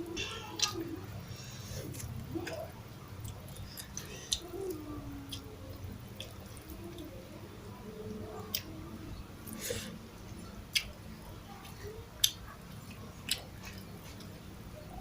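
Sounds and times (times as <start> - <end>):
low steady hum: 0.0 - 15.0
chewing mouth clicks and smacks: 12.2 - 14.3.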